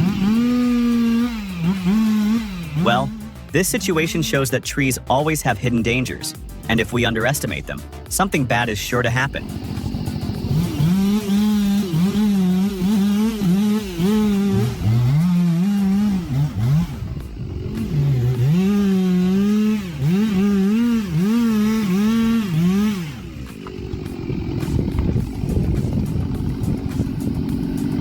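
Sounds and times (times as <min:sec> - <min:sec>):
chainsaw engine revving: 0:00.0 - 0:28.0
rough noise: 0:06.7 - 0:28.0.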